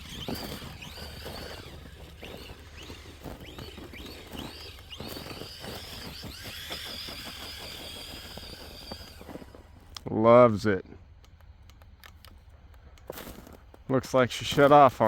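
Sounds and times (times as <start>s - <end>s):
electric motor whining: 0.0s - 9.8s
short clicks and crunches: 0.0s - 10.1s, 11.2s - 15.0s.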